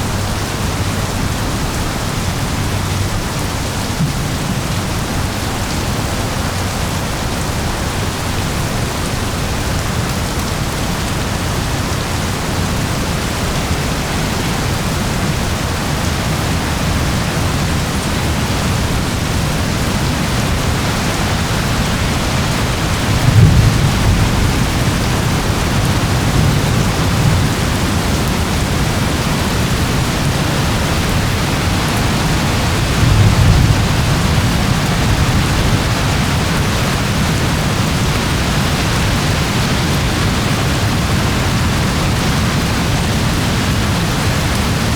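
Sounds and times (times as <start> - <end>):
heavy rain: 0.0 - 44.9
low thunder rumbles: 12.2 - 44.8.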